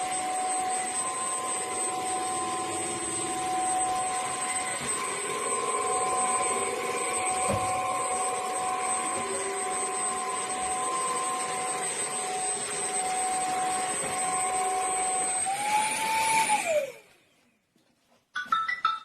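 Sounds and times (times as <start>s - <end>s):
vacuum motor whining: 0.0s - 17.3s.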